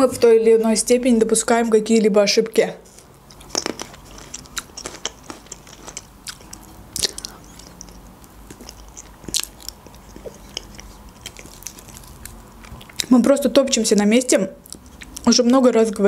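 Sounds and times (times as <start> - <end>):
chewing with wet clicks and smacks: 3.2 - 15.7.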